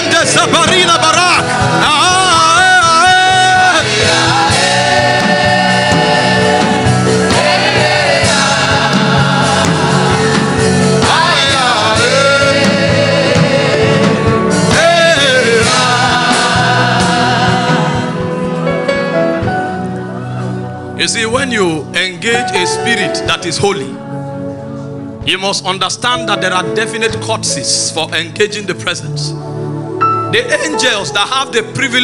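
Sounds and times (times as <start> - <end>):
lead voice singing: 0.0 - 18.7
choir singing: 0.0 - 18.9.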